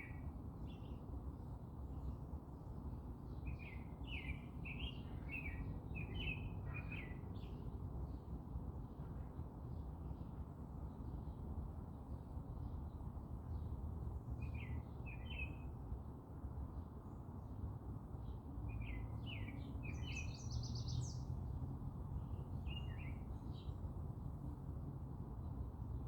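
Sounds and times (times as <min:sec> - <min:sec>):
songbirds chirping: 0:16.8 - 0:26.0.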